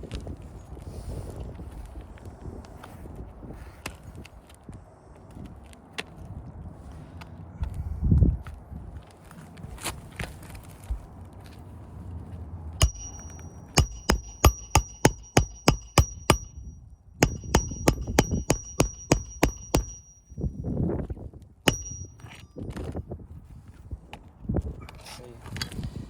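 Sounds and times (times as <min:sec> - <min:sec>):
hammer driving nails: 0:12.8 - 0:20.3, 0:21.7 - 0:22.4.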